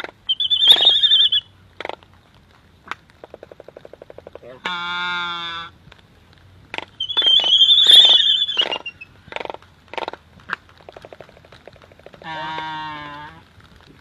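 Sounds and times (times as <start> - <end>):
high shrill animal squeal: 0.3 - 1.4, 7.0 - 9.0.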